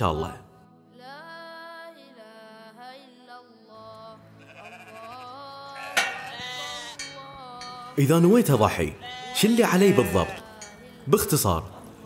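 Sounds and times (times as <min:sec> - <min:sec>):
soft background music: 0:00.0 - 0:12.0
sheep bleating: 0:04.2 - 0:10.8.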